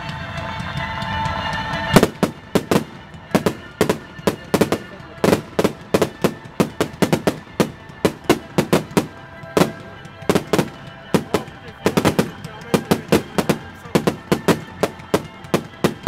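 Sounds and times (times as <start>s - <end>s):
fireworks bangs and cracks: 0.0s - 16.0s.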